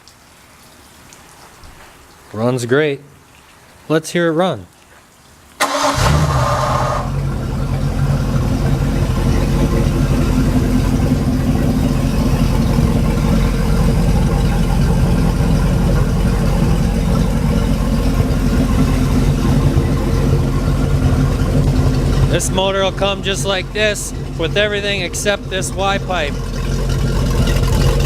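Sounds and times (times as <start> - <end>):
boat engine idling: 5.6 - 28.0.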